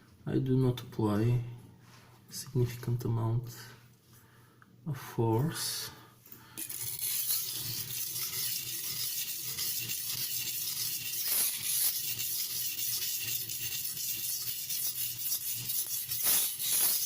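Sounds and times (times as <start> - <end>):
knife scraping on sharpening stone: 6.6 - 17.0.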